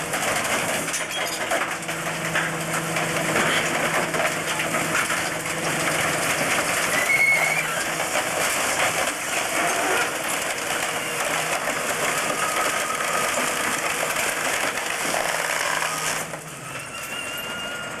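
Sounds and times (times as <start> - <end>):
junk crackling and splintering: 0.0 - 16.5
truck engine and hydraulics droning: 0.0 - 18.0
short squeals: 6.9 - 8.0.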